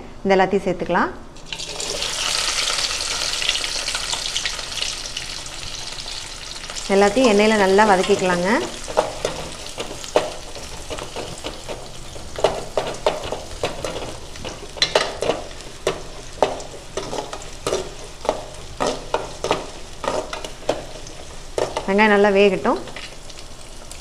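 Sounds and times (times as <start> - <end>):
onions sizzling in hot oil: 1.4 - 24.0
metal spoon scraping a pan: 7.2 - 22.0.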